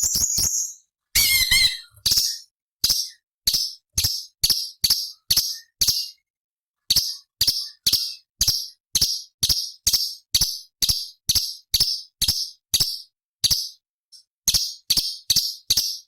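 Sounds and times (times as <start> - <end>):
bird harsh chattering notes: 0.0 - 2.5.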